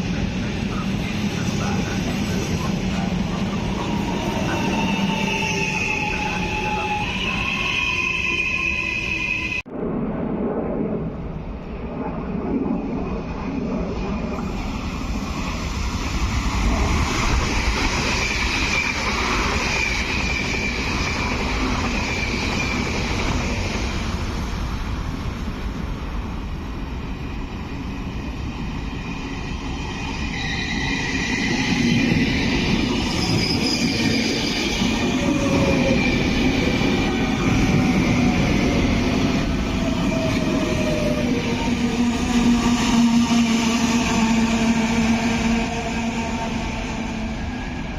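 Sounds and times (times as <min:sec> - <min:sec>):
train running: 0:00.0 - 0:09.7, 0:12.8 - 0:47.9
high wheel squeal: 0:04.0 - 0:09.6, 0:29.9 - 0:36.5.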